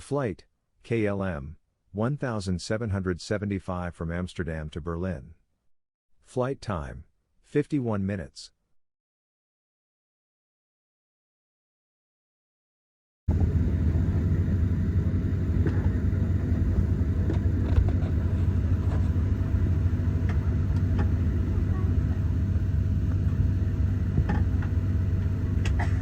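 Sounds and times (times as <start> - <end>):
aircraft cabin ventilation hum: 13.3 - 26.0.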